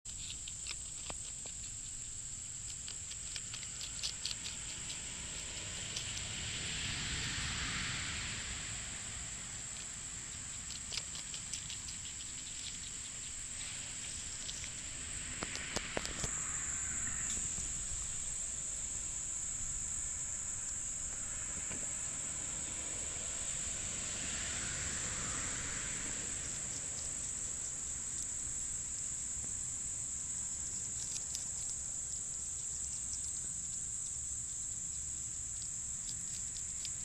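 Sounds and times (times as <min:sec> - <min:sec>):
rustling hiss: 0:00.1 - 0:37.0
high-pitched insect drone: 0:14.1 - 0:35.7.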